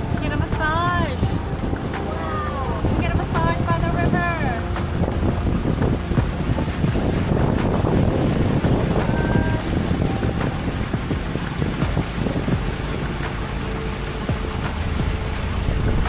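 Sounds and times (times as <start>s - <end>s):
boat engine running: 0.0s - 16.0s
water noise: 0.0s - 16.0s
wind buffeting microphone: 0.0s - 16.0s.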